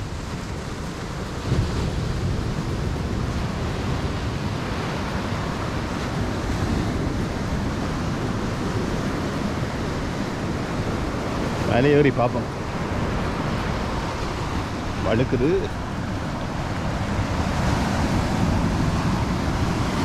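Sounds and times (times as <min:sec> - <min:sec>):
ocean surf washing on beach: 0:00.0 - 0:20.0
wind buffeting microphone: 0:00.0 - 0:20.0.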